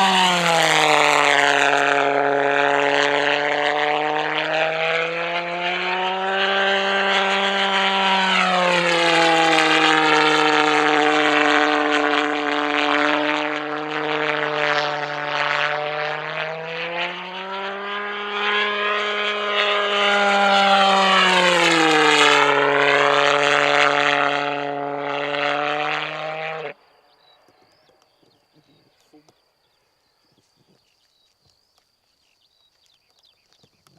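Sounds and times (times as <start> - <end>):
pulsejet engine buzzing drone: 0.0 - 26.8.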